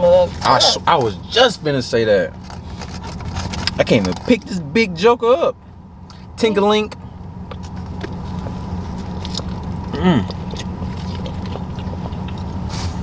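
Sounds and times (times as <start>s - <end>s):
low car cabin hum: 0.0s - 13.0s
people chewing food: 7.4s - 13.0s
person humming mm: 9.9s - 10.4s.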